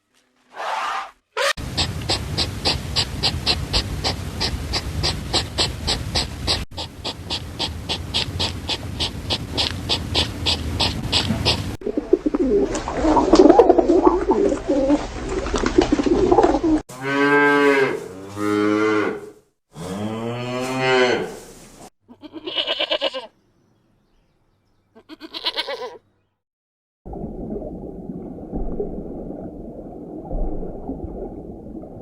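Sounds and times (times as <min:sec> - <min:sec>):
noisy animal sounds: 0:00.5 - 0:15.0
short quavering bleats: 0:22.1 - 0:23.4, 0:24.9 - 0:26.1.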